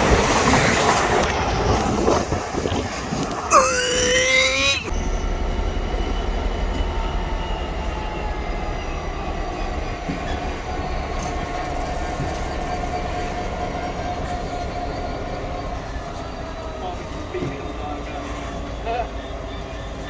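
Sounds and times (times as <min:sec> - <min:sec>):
train rumbling past: 0:04.9 - 0:20.0.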